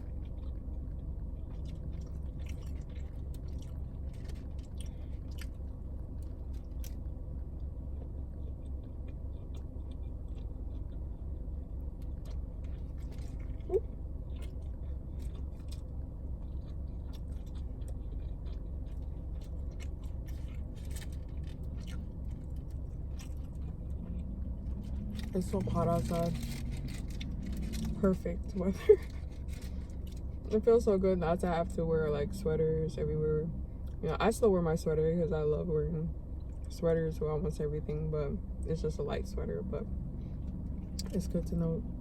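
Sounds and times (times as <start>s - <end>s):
chewing food: 0.0s - 30.7s
low hum: 0.0s - 42.0s.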